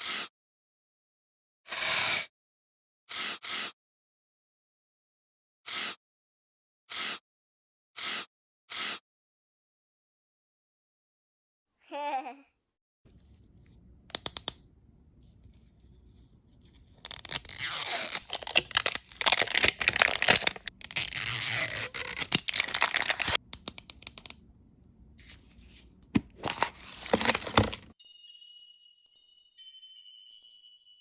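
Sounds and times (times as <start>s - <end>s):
packaging crinkling and tearing: 16.9s - 23.4s, 26.3s - 27.9s.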